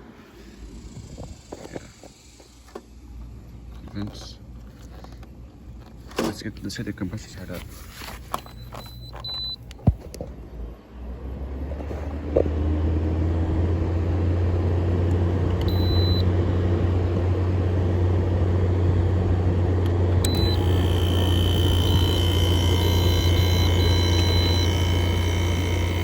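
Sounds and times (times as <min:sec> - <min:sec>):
air conditioner fan and hum: 0:00.0 - 0:26.0
short beeps: 0:15.7 - 0:16.2, 0:20.3 - 0:26.0
compressor click: 0:19.8 - 0:26.0.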